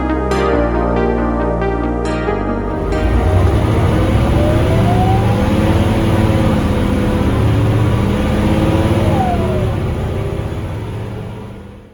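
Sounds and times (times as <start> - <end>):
bus engine rumbling with whine: 2.6 - 11.9.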